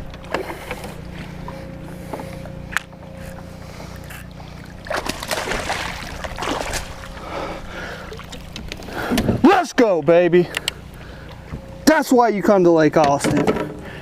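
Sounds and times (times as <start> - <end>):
splashing and rustling water: 0.0 - 11.6
wind rumble on microphone: 8.5 - 9.5.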